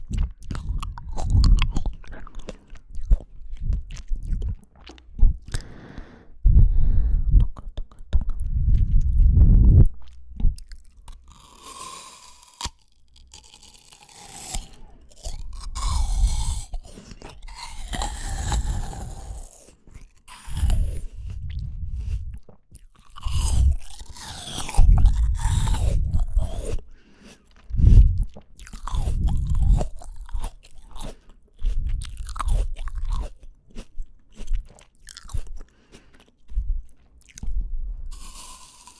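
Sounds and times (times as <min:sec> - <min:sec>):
crunchy chewing of fruit: 0:00.0 - 0:06.2, 0:07.4 - 0:38.9.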